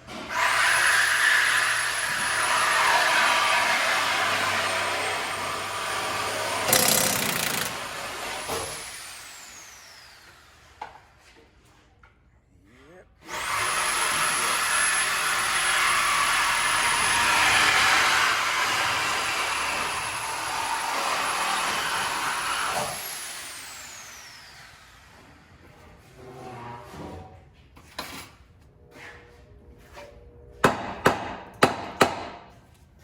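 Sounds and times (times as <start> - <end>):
pneumatic rotary tool whining: 0.2 - 10.8.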